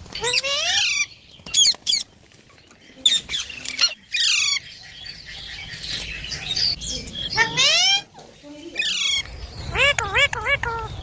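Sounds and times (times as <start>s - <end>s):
parakeet squawking: 8.8s - 11.0s.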